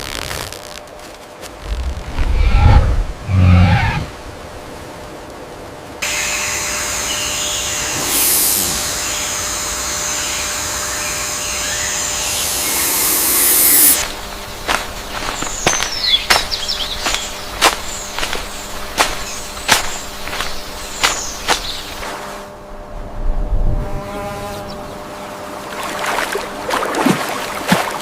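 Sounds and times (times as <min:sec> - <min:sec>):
rainforest insect hiss: 0:06.0 - 0:22.9.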